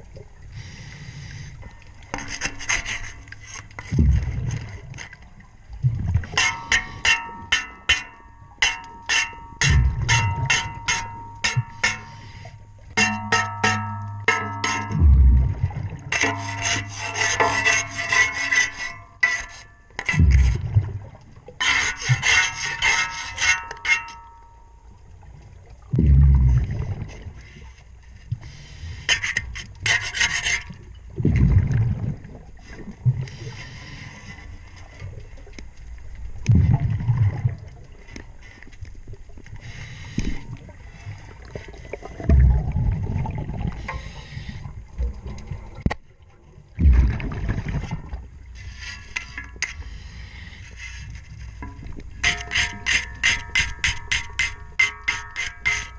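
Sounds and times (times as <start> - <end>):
propeller scraped underwater: 0.6 - 7.9, 9.0 - 24.4, 26.0 - 32.0, 46.8 - 55.9
scuba bubbles rushing underwater: 15.0 - 16.1, 25.8 - 27.3, 31.1 - 33.4, 36.4 - 38.1, 41.3 - 43.9, 46.6 - 48.4.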